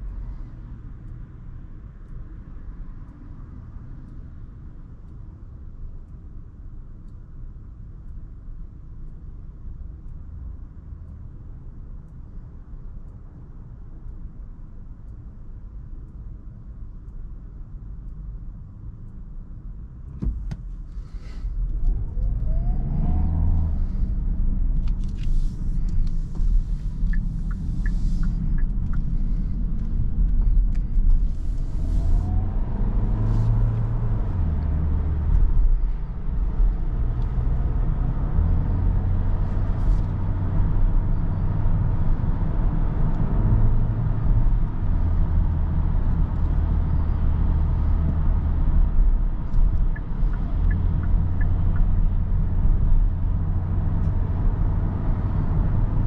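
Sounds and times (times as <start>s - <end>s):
road and tyre noise: 0.0s - 56.0s
car engine accelerating: 21.0s - 56.0s.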